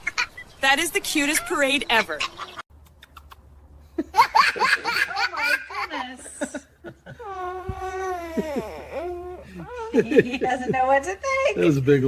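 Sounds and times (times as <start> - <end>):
baby laughing: 1.9 - 6.2, 7.1 - 10.9.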